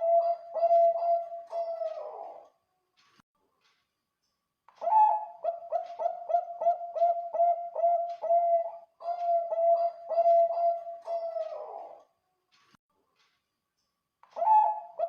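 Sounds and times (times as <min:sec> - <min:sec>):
dove cooing: 0:00.0 - 0:02.5, 0:04.8 - 0:12.0, 0:14.3 - 0:15.0.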